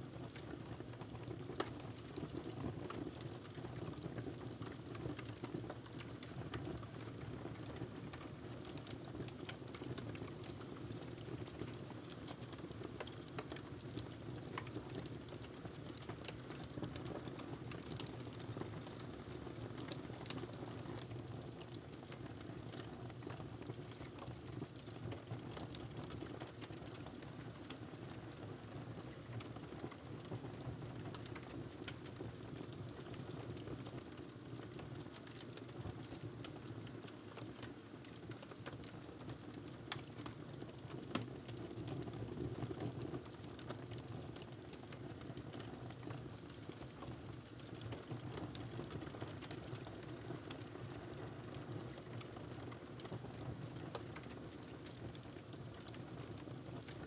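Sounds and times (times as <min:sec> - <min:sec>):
wood fire crackling: 0:11.2 - 0:20.4, 0:51.9 - 0:57.0.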